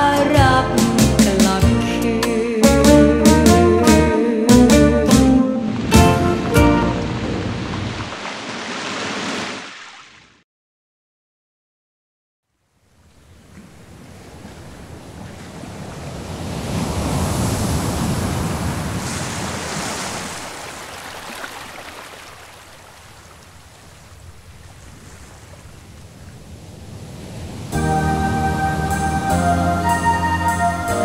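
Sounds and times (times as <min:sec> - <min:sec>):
ocean waves: 0:05.0 - 0:10.4, 0:13.0 - 0:31.0.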